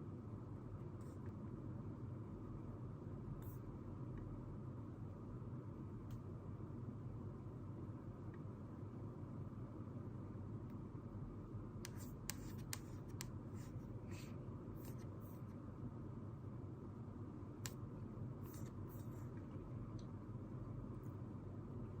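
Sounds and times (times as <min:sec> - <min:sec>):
low room hum: 0:00.0 - 0:22.0
pen scratching on paper: 0:11.9 - 0:13.9.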